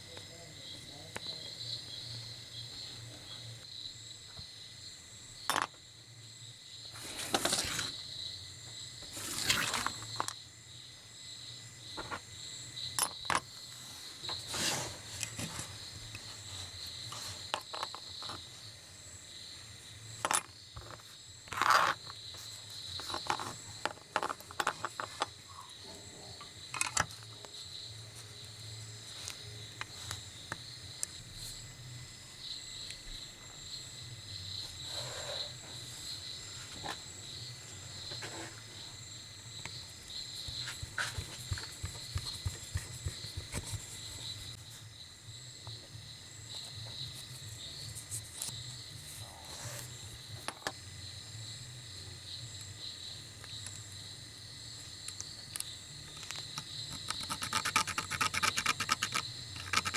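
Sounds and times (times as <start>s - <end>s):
metal scraping rasps: 56.9s - 59.9s.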